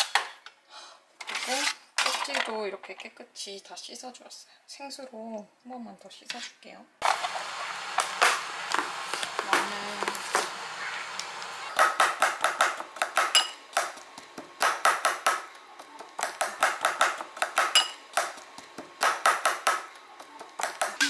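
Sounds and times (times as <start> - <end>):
knife chopping on a cutting board: 11.8 - 21.0.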